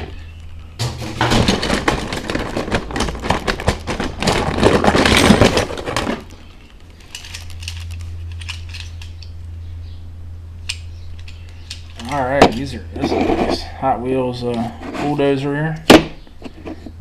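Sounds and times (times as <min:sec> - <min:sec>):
metal toy cars clattering: 0:00.8 - 0:06.3, 0:07.0 - 0:09.2.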